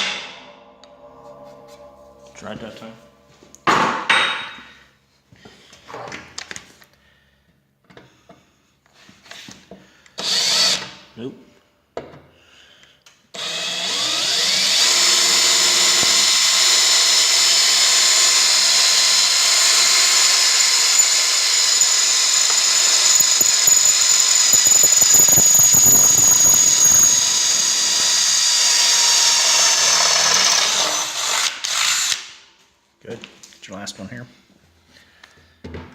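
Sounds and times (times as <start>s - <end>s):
cordless drill boring through metal: 10.2s - 10.9s, 13.4s - 32.3s.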